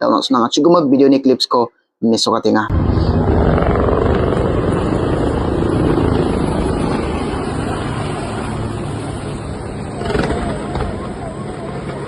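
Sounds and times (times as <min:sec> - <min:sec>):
helicopter rotor drone: 0:02.7 - 0:12.0.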